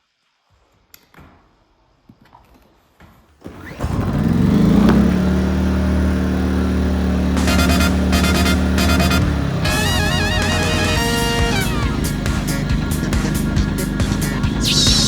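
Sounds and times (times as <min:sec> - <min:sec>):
generator engine starting and running: 0:03.4 - 0:15.0.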